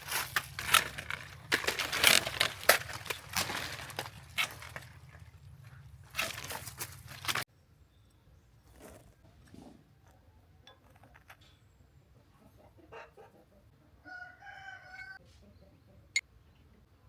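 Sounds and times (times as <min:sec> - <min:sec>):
rooster crowing: 0:14.0 - 0:15.2.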